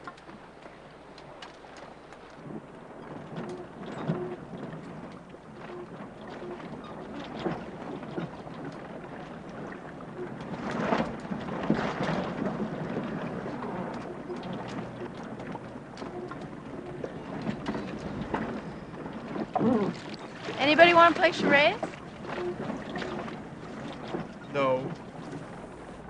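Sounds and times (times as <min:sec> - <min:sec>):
water sloshing against boats: 0:00.0 - 0:26.0
wind: 0:00.0 - 0:26.0.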